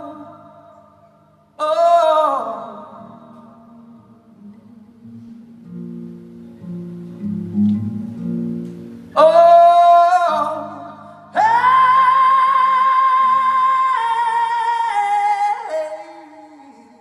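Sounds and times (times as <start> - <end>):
quiet acoustic guitar: 0.0 - 16.9
person singing long notes: 9.1 - 17.0.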